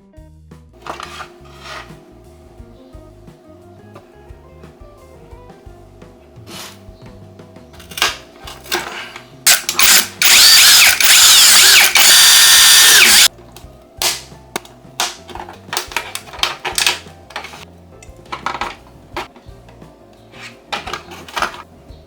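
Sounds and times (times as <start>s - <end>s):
electric power tool whining: 0.8s - 2.8s, 7.8s - 13.3s.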